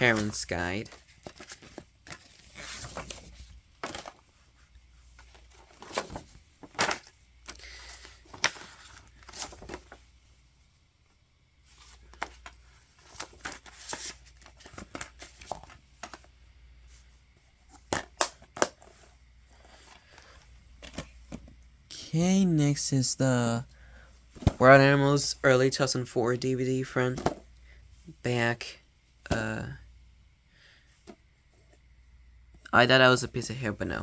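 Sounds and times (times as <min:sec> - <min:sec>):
paper rustling: 0:00.0 - 0:10.0, 0:11.7 - 0:16.2
plastic case clicks and snaps: 0:17.9 - 0:18.8.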